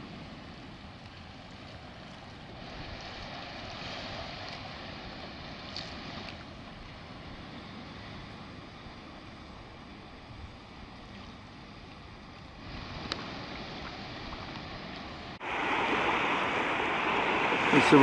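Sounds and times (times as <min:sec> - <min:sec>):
sea surf on a beach: 0:00.0 - 0:18.0
wind on microphone: 0:12.5 - 0:18.0.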